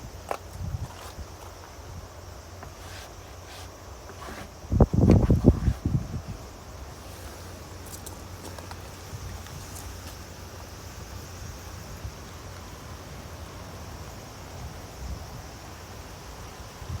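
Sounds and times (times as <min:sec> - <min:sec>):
wind rumble on microphone: 0:00.0 - 0:02.1, 0:04.2 - 0:07.0
faint high-pitched hiss: 0:00.0 - 0:17.0.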